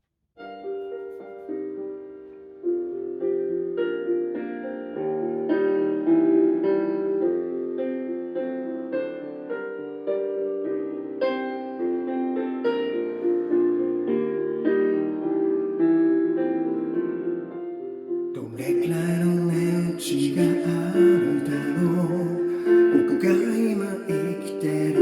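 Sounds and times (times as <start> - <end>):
slow solo piano: 0.4 - 25.0.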